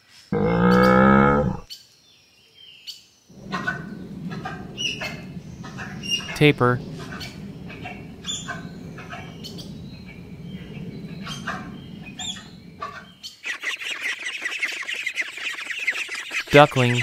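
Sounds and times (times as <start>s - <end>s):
low hum: 3.3s - 13.1s
animal chirps and squeaks: 7.1s - 17.0s.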